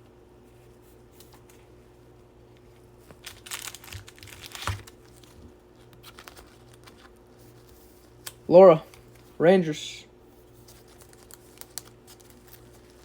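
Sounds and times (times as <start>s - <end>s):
card wrapper crinkling: 3.0s - 9.4s, 10.6s - 13.0s.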